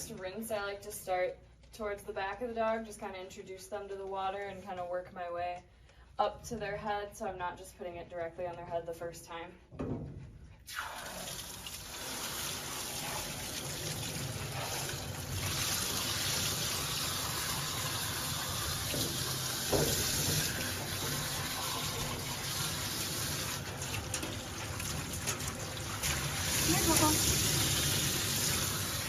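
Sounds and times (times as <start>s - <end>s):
water spray rinsing dog: 10.7s - 29.0s.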